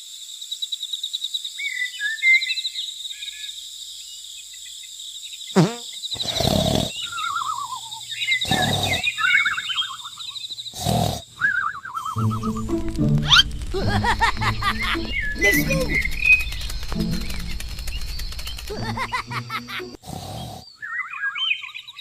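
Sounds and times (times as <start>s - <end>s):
insect trill: 0.0s - 20.6s
bird chirps: 1.6s - 22.0s
falling swoop: 12.2s - 20.0s
loud noisy bursts: 12.2s - 20.0s.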